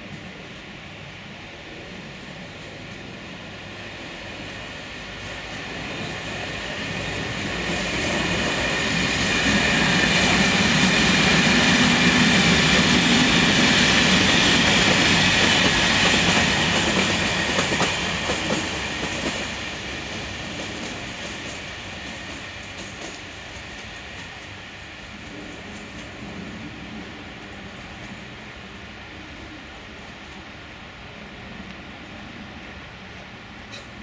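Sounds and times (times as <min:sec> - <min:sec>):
train passing at speed: 0:00.0 - 0:34.0
wheels clicking over rail joints: 0:06.9 - 0:24.5.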